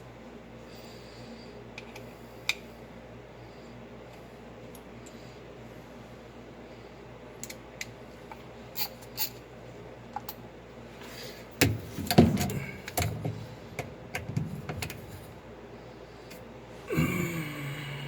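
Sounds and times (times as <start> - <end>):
metal parts clunking and rattling: 11.6 - 15.3.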